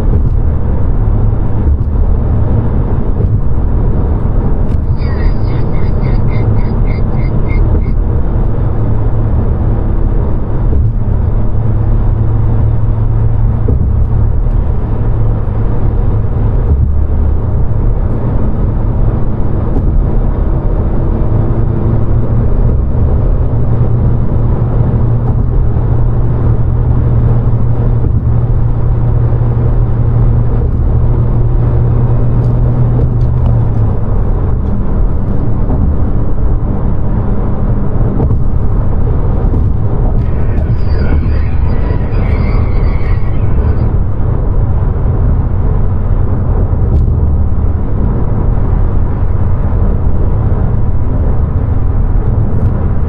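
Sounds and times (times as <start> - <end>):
car engine running: 0.0 - 18.4, 29.1 - 49.5
road noise: 0.0 - 53.0.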